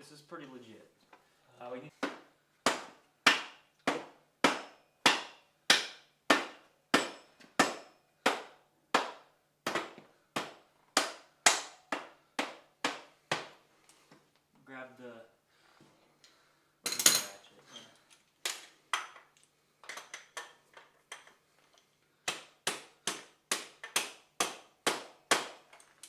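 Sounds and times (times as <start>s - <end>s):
hammer striking metal: 2.7s - 9.1s.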